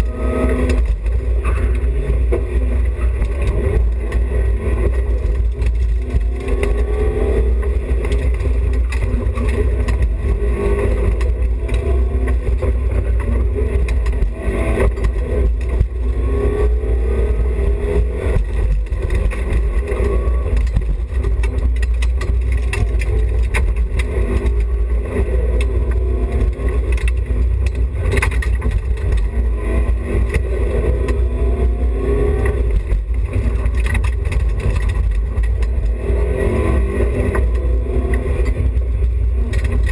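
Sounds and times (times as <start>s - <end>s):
car engine revving hard: 35.6s - 39.9s.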